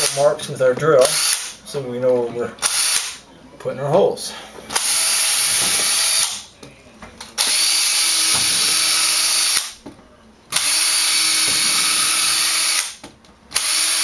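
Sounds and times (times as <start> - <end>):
power drill drilling into wood: 7.4 - 9.7, 10.6 - 14.0.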